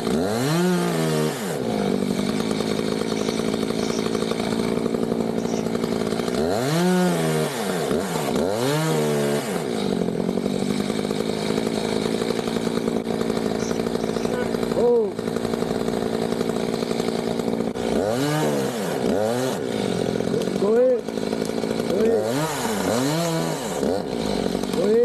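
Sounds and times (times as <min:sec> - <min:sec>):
chainsaw engine drone: 0:00.0 - 0:25.0
chainsaw revving: 0:00.0 - 0:25.0.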